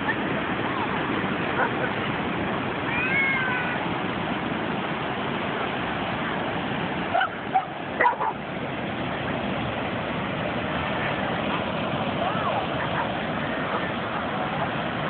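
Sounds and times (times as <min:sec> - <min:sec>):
dogs barking and yipping: 0:01.6 - 0:02.0, 0:07.1 - 0:08.4, 0:12.3 - 0:14.0.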